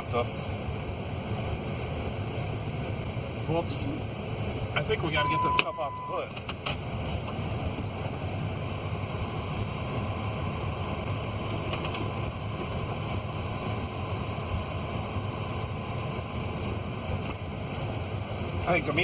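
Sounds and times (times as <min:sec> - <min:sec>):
vehicle engine running: 0:00.0 - 0:19.0
faint steady high tone: 0:05.1 - 0:06.3.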